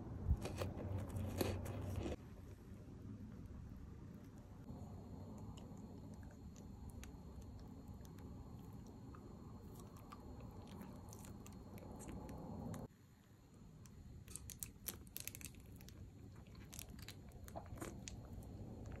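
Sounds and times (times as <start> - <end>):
biting and chewing candy: 0.4 - 2.2, 14.2 - 19.0.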